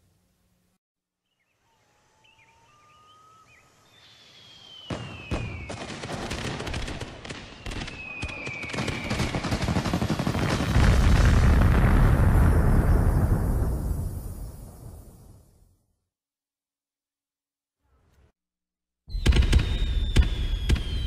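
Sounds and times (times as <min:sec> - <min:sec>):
faint chirps and whistles: 0:01.2 - 0:05.9, 0:07.4 - 0:09.6, 0:19.1 - 0:21.0
fireworks whistling: 0:04.0 - 0:15.8, 0:19.1 - 0:21.0
fireworks popping and crackling: 0:04.8 - 0:15.0.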